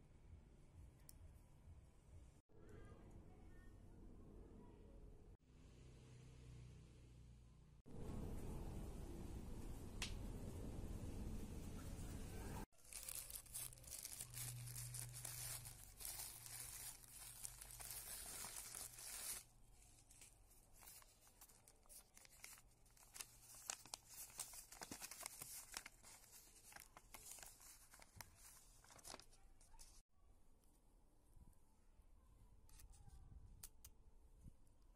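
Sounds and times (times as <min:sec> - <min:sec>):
paper rustling and crinkling: 0:12.7 - 0:30.0.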